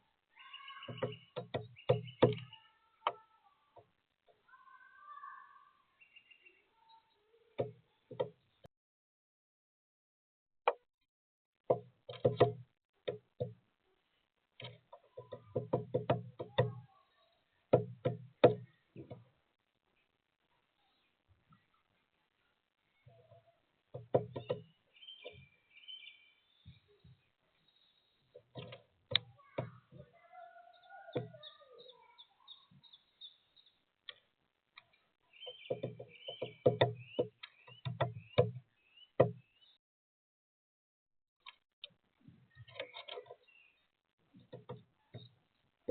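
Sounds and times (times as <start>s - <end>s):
woodpecker pecking: 0.4s - 2.6s, 14.6s - 16.8s, 23.9s - 25.5s, 34.0s - 38.6s
birds chirping whistled notes: 24.4s - 28.2s, 35.3s - 39.8s.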